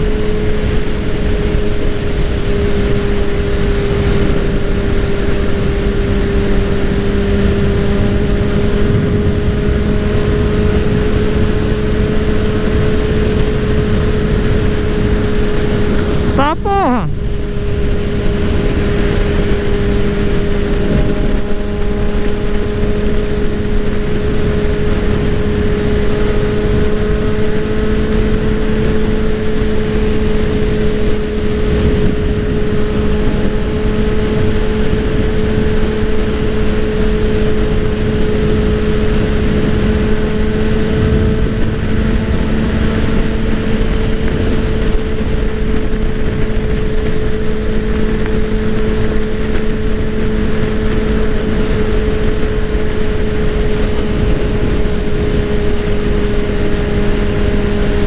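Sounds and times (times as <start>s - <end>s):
motorcycle engine at cruising speed: 0.0s - 58.0s
wind noise: 0.0s - 58.0s.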